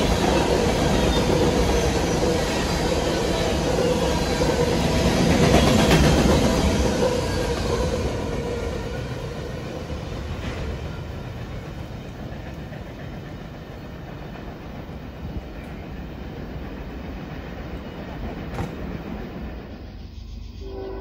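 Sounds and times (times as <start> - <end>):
freight train rumbling on track: 0.0 - 21.0.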